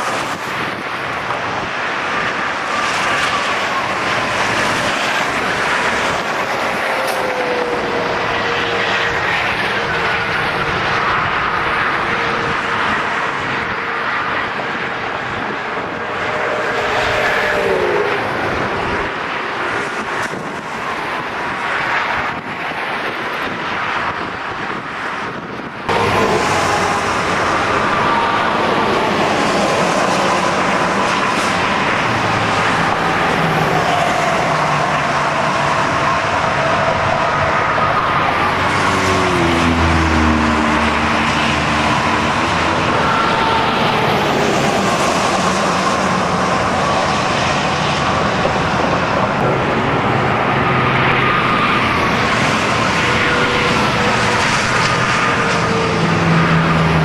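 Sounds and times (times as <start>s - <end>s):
strong wind roaring: 0.0s - 57.0s
thin wailing tones: 41.9s - 45.2s.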